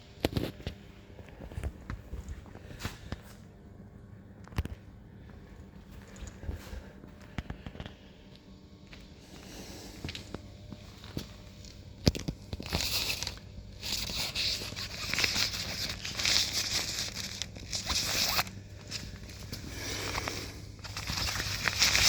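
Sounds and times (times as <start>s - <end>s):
fabric cover rustling: 12.6s - 22.0s.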